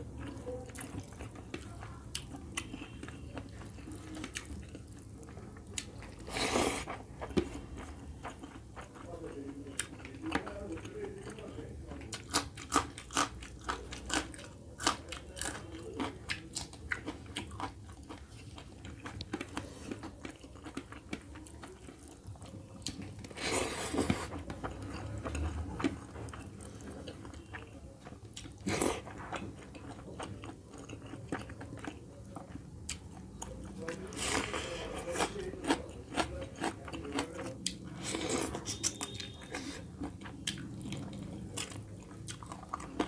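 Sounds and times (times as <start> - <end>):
soft chewing: 0.0 - 43.0
crunching raw chilli: 12.1 - 43.0.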